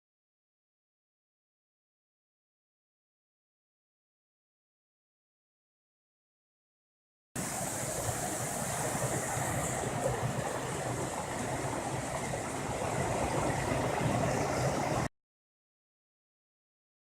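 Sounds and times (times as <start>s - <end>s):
stream water rushing: 7.4s - 15.1s.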